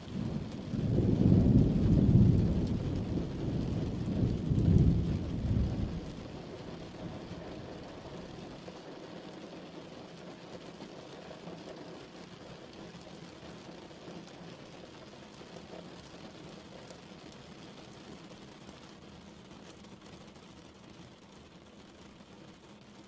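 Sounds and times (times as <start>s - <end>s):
thunder rumble: 0.0s - 8.6s
steady rain falling: 0.0s - 23.0s.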